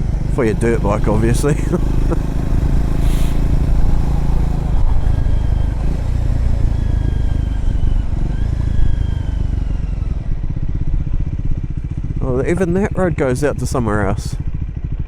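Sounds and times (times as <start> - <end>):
road noise on gravel: 0.0 - 10.6
motorcycle engine running: 0.0 - 15.0.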